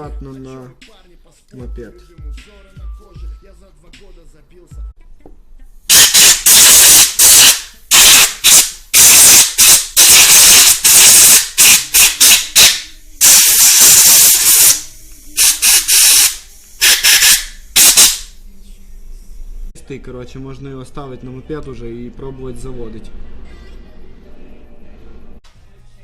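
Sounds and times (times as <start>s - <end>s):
compressed air hissing blasts: 5.9s - 19.7s.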